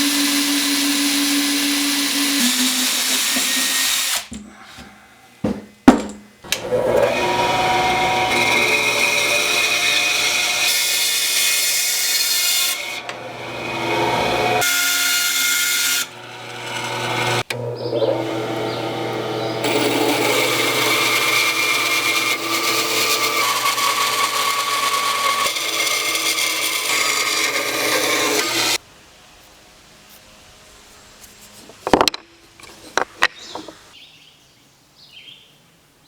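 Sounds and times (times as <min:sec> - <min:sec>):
power tools cutting wood: 0:00.0 - 0:04.3, 0:06.4 - 0:28.8.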